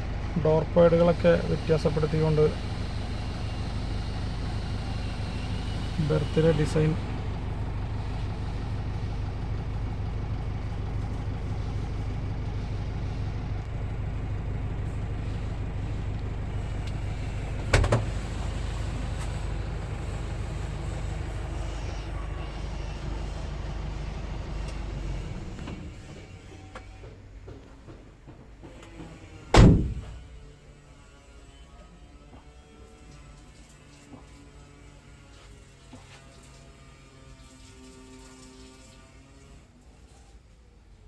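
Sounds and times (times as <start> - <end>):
vehicle engine humming: 0.0 - 32.8
sharp knock: 29.6 - 30.3.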